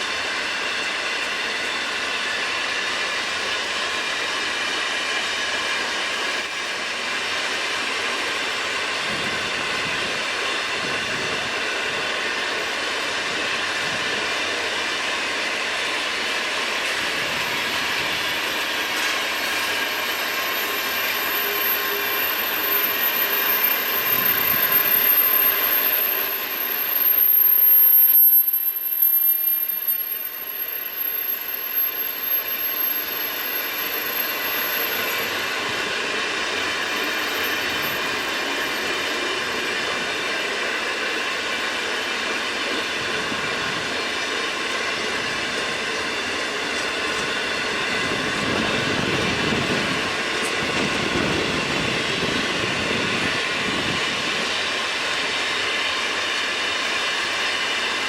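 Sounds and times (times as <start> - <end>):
train wheels rattling on track: 0.0 - 58.0
high-pitched wheel squeal: 16.8 - 41.0.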